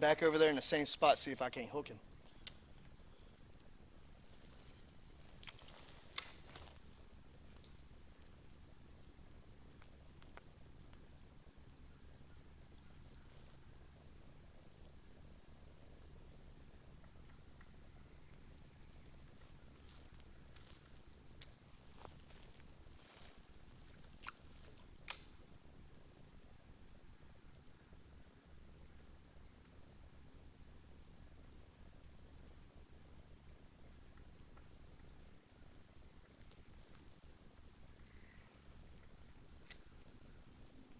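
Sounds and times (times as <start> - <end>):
insects trilling: 0.0 - 40.9
sharp clicks: 25.0 - 25.4.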